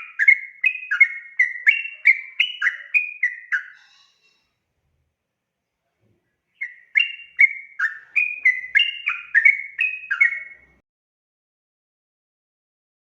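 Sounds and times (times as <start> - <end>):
bird singing bubbly phrase: 0.0 - 3.8, 6.6 - 10.8.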